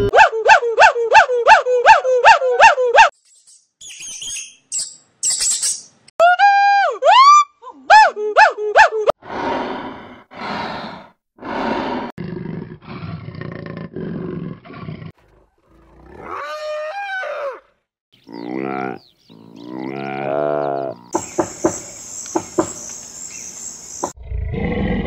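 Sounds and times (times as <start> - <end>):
animal roars: 9.3 - 17.6, 24.2 - 25.0.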